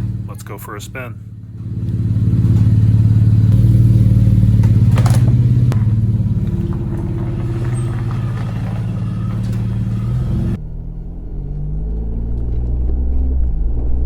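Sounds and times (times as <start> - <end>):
engine exhaust deep drone: 0.0 - 14.0.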